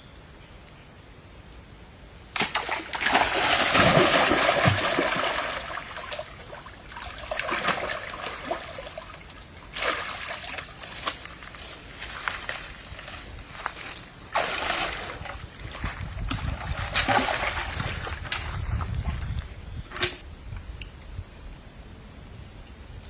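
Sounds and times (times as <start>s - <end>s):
water splashing and sloshing: 2.4s - 19.4s.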